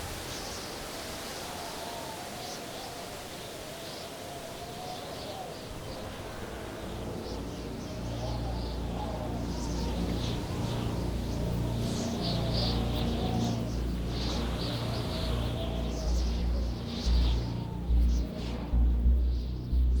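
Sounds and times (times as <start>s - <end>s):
low steady drone: 5.0s - 20.0s.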